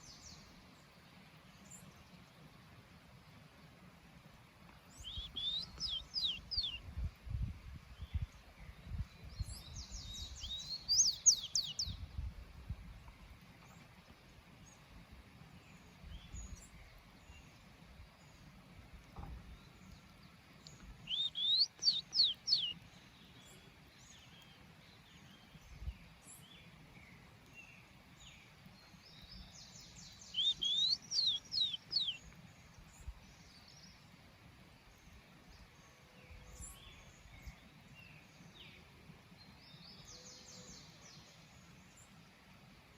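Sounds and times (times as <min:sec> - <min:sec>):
faint bird chirps: 0:05.0 - 0:06.8, 0:08.0 - 0:12.0, 0:19.2 - 0:34.0, 0:39.4 - 0:42.1
songbird whistling song: 0:05.0 - 0:06.9, 0:08.0 - 0:12.0, 0:20.6 - 0:34.0.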